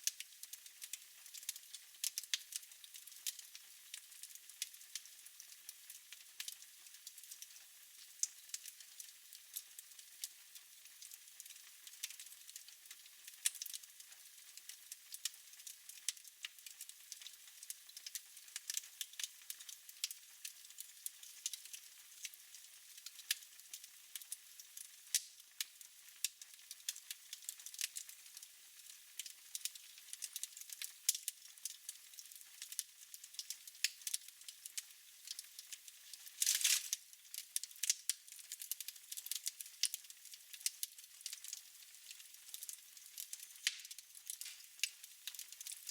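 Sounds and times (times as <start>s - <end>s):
wood fire crackling: 0.0s - 10.3s, 10.9s - 45.9s
fire popping: 29.2s - 40.0s, 40.6s - 45.9s.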